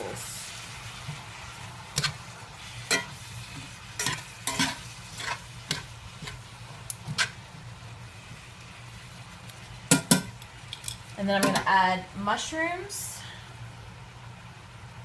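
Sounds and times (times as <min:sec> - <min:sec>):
greens sizzling softly: 0:00.0 - 0:14.2
utensil scraping cast iron pan: 0:01.9 - 0:07.4.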